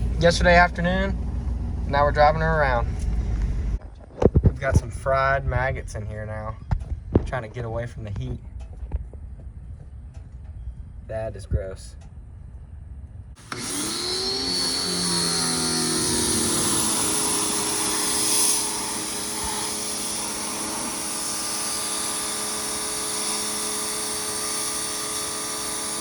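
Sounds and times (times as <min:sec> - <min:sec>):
small motor whirring: 0:13.4 - 0:26.0.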